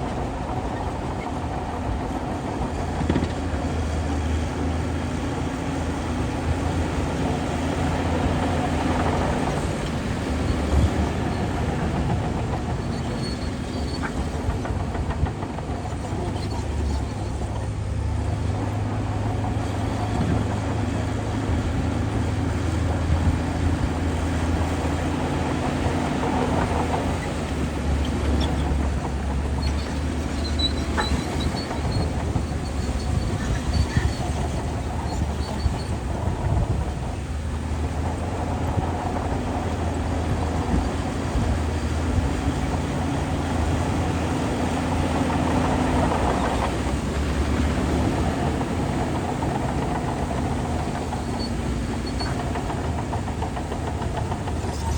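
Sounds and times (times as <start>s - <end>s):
bulldozer diesel engine under load: 0.0s - 54.9s
steel tracks clattering: 0.0s - 54.9s.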